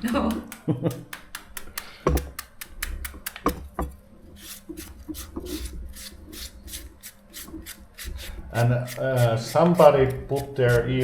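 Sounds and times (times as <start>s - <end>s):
papaya being shredded by hand: 4.4s - 11.0s.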